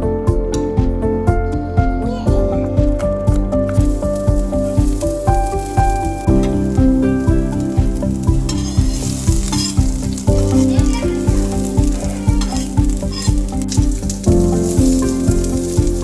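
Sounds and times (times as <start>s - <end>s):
background music with beat: 0.0s - 16.0s
food sizzling in a pan: 3.7s - 16.0s.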